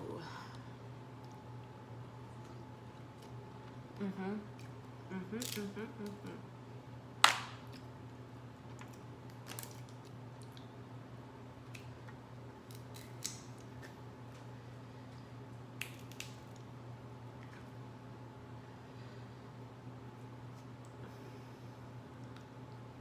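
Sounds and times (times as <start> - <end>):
low electrical hum: 0.0 - 23.0
crab shell cracking: 12.6 - 14.0, 15.8 - 16.7.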